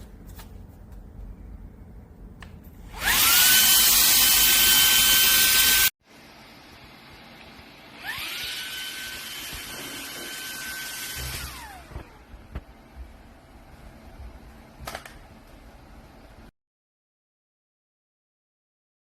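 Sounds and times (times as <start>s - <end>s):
handheld vacuum motor whining: 2.9s - 5.9s, 8.0s - 12.3s.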